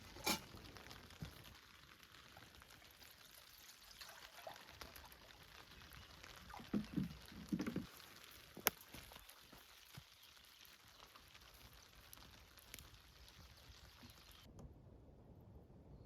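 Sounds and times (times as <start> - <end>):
light rain pattering: 0.0 - 14.5
low gurgling knocks: 6.6 - 7.9.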